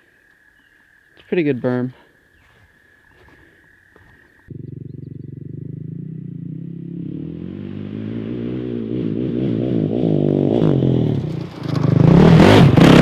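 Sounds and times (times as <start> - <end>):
engine running: 4.5 - 13.0.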